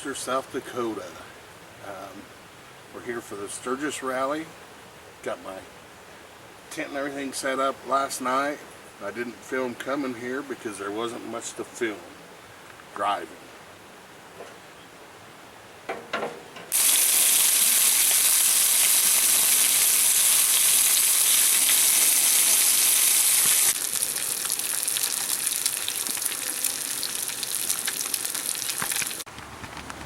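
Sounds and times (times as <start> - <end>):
food sizzling in a pan: 16.7 - 29.2
small crackling pops: 27.0 - 30.0.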